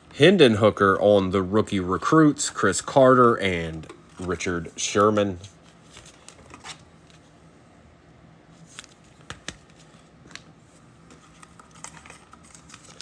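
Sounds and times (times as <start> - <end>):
trading cards being shuffled: 4.0 - 7.2, 8.6 - 10.5, 11.1 - 13.0.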